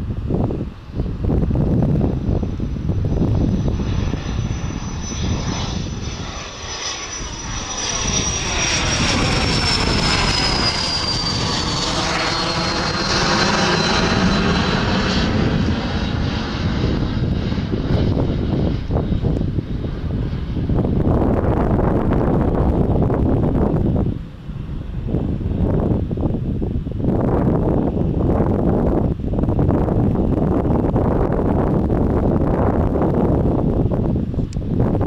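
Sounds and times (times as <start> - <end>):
jet airliner passing: 0.0 - 35.0.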